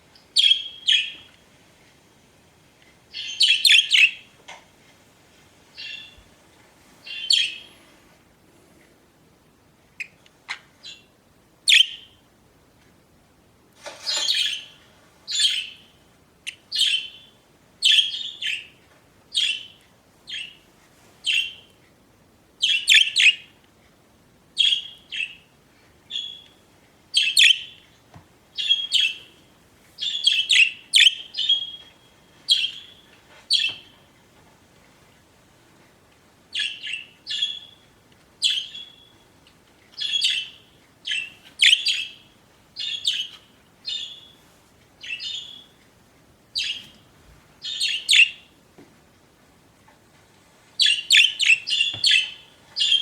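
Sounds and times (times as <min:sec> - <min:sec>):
budgerigars chirping: 0:00.4 - 0:01.3, 0:03.1 - 0:04.3, 0:05.8 - 0:06.2, 0:07.1 - 0:07.7, 0:11.7 - 0:12.1, 0:14.0 - 0:15.9, 0:16.5 - 0:18.7, 0:19.4 - 0:20.6, 0:21.3 - 0:21.7, 0:22.6 - 0:23.5, 0:24.6 - 0:25.4, 0:27.2 - 0:27.8, 0:28.6 - 0:29.3, 0:30.0 - 0:31.8, 0:32.5 - 0:33.8, 0:36.6 - 0:37.8, 0:38.4 - 0:39.1, 0:40.0 - 0:42.2, 0:42.8 - 0:44.3, 0:45.0 - 0:45.7, 0:46.6 - 0:46.9, 0:47.6 - 0:48.5, 0:50.8 - 0:53.0.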